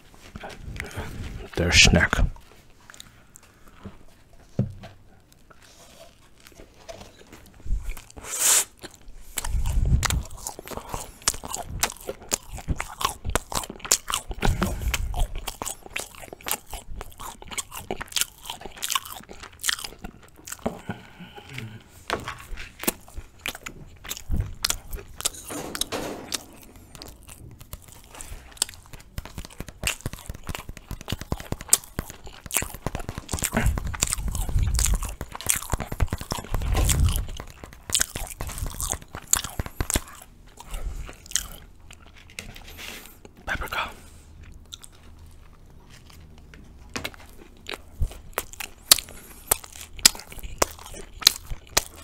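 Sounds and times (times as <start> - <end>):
crunchy chewing of bread: 0.0 - 52.0
dull low thumps: 33.5 - 37.6.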